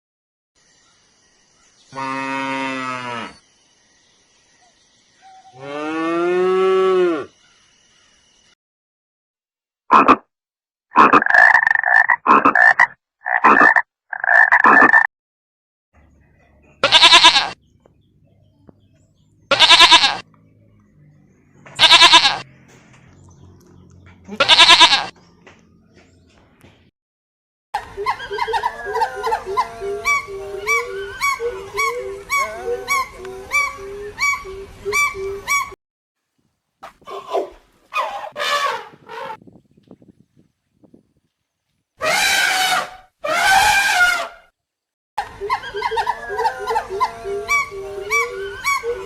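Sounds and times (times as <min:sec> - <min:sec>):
cow mooing: 0:02.0 - 0:03.4, 0:05.5 - 0:07.3
quavering animal calls: 0:19.5 - 0:20.4, 0:27.8 - 0:35.8, 0:42.0 - 0:44.5, 0:45.2 - 0:49.0.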